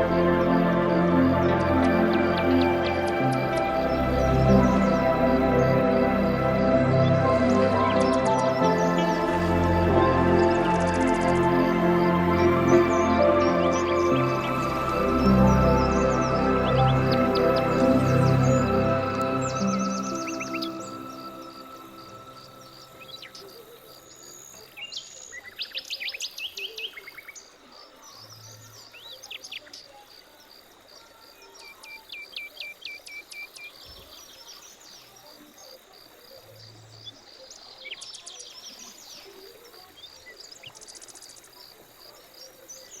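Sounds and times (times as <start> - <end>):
pulsing insect chorus: 0.0 - 25.6
birds chirping and trilling: 0.0 - 43.0.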